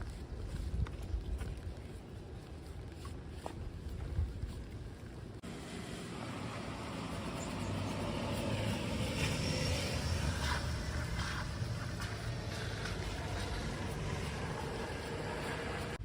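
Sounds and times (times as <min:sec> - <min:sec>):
road traffic rumble: 0:00.0 - 0:16.0
vehicle passing nearby: 0:05.4 - 0:16.0.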